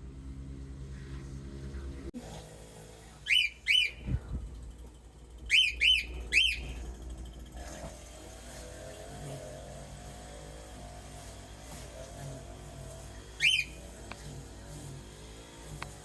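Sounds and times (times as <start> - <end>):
cockatiel whistled chirps: 3.3 - 4.0, 5.5 - 6.8, 13.4 - 13.8.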